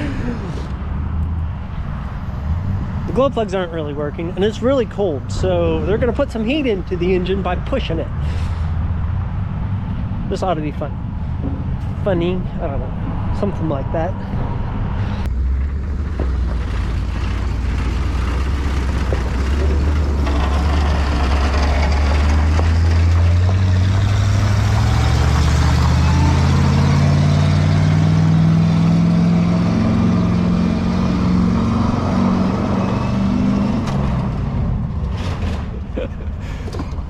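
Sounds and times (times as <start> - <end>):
truck engine accelerating: 0.0 - 37.0.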